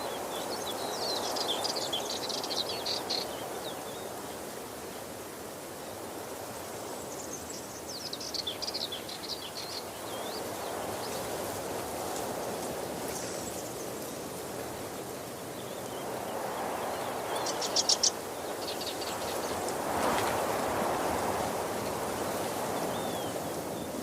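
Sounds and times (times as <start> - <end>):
small birds chirping: 0.0 - 5.0, 6.6 - 21.1.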